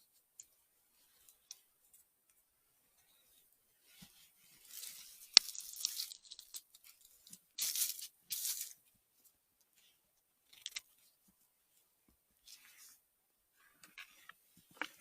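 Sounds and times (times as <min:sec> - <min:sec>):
rustling undergrowth: 0:03.8 - 0:08.8.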